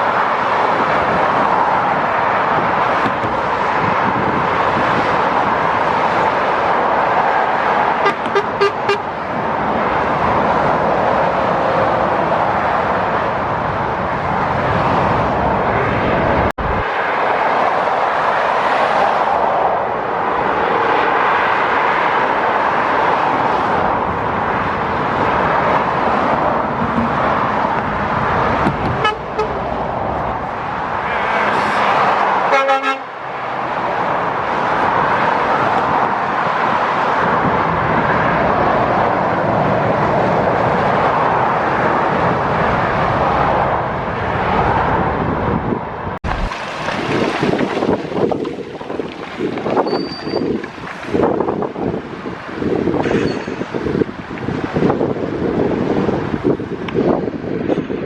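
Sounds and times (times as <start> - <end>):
motorway traffic noise: 0.0 - 58.0
car horn toot: 8.0 - 9.1, 28.9 - 29.6, 31.0 - 31.8, 32.5 - 33.1.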